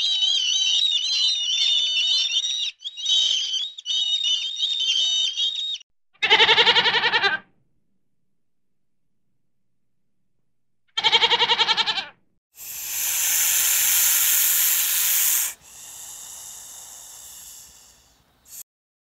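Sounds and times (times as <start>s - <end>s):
wavering bleat: 6.2s - 7.5s, 11.0s - 12.2s
loud hiss: 12.6s - 18.6s.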